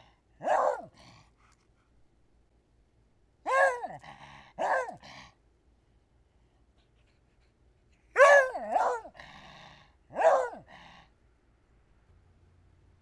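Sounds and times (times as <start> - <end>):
dog barking: 0.4 - 1.1, 3.5 - 5.2, 8.1 - 9.2, 10.1 - 10.7.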